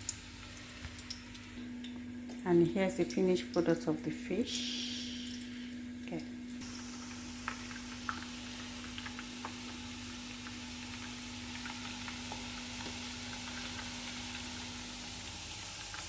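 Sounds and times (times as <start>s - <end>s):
oil sizzling in a pot: 0.0s - 2.4s, 3.4s - 16.0s
low hum: 0.1s - 12.2s.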